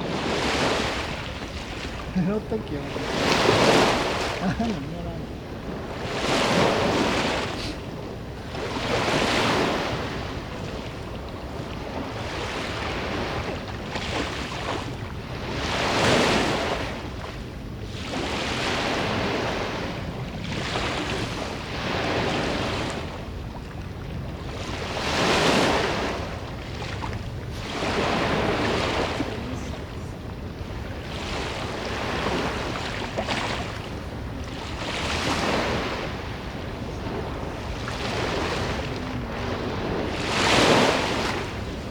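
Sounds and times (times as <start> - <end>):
surf rushing: 0.0 - 10.6, 24.4 - 41.9
wind on microphone: 0.0 - 41.9.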